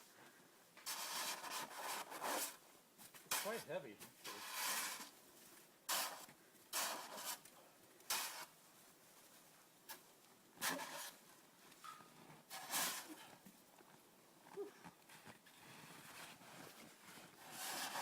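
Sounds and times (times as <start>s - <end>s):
hard snow crunching and scraping: 0.8s - 7.5s, 8.1s - 8.6s, 10.6s - 11.3s, 12.4s - 13.4s, 15.1s - 18.0s.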